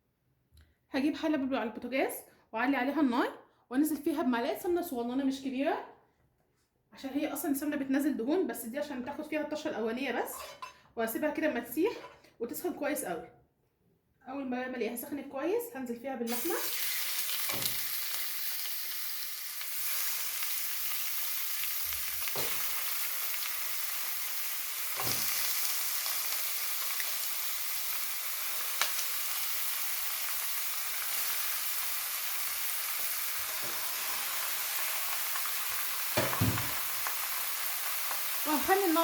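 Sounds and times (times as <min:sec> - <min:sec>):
meat sizzling in hot fat: 0:16.3 - 0:39.0.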